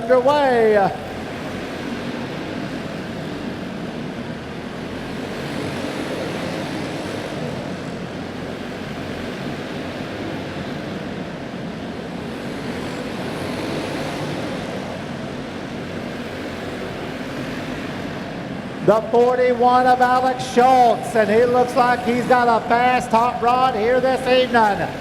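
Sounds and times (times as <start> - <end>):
racing kart engines at full throttle: 0.0 - 25.0.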